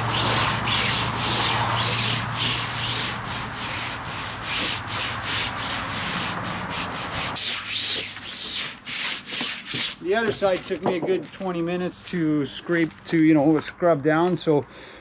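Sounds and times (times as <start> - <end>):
scrubbing wet canvas: 0.0 - 10.8.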